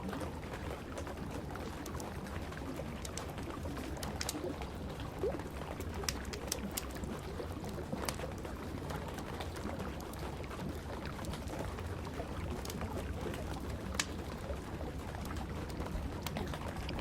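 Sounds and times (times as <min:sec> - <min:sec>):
steady rain: 0:00.0 - 0:17.0
wood fire crackling: 0:01.8 - 0:08.4, 0:09.2 - 0:17.0
fire popping: 0:02.6 - 0:08.2, 0:12.2 - 0:17.0.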